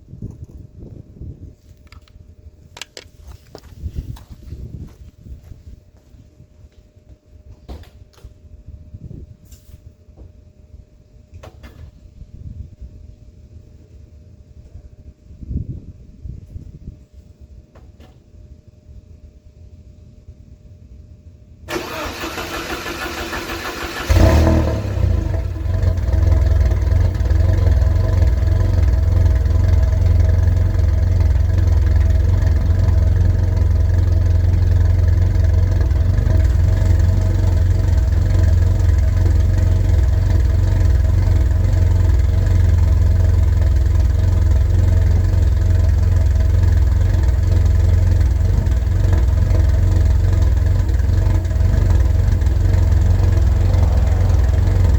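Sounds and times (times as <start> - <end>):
starter motor cranking: 21.7 - 26.6
car engine starting and idling: 21.7 - 54.9.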